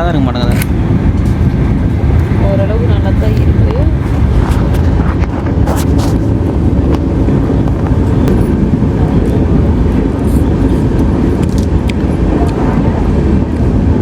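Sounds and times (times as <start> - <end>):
train rumble inside coach: 0.0 - 14.0.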